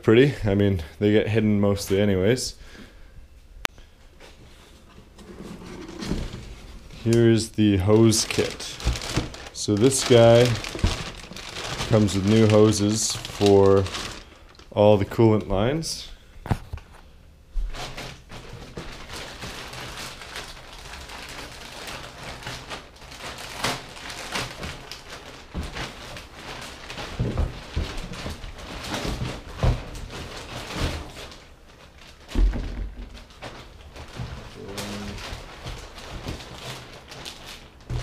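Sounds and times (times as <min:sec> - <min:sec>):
knocks and thumps of handling: 0:32.3 - 0:34.6.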